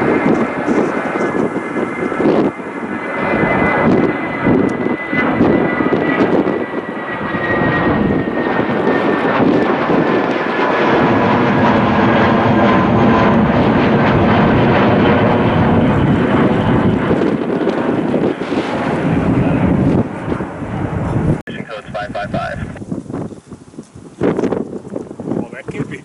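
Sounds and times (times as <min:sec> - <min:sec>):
high engine whine: 0:00.0 - 0:23.0
jet engines roaring: 0:00.0 - 0:26.0.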